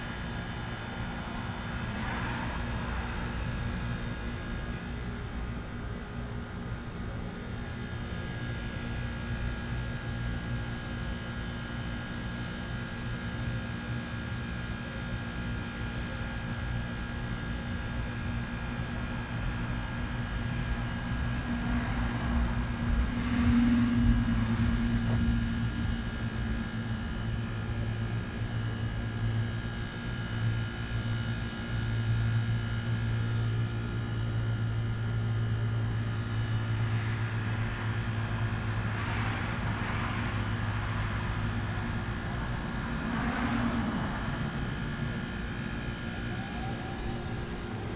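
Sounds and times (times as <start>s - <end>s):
faint steady whine: 0.0s - 47.9s
heat pump compressor hum: 0.0s - 47.9s.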